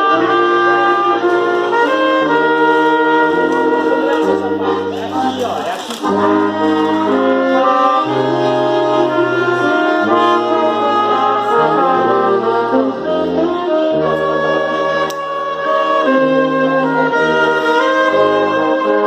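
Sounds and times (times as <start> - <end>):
brass ensemble playing a hymn: 0.0 - 19.0.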